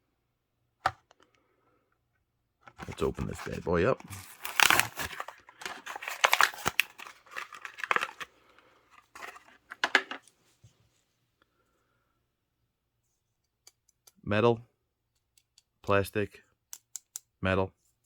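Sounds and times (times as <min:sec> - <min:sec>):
plastic blister crinkling: 0:02.7 - 0:10.2
cardboard ripping: 0:02.8 - 0:08.3.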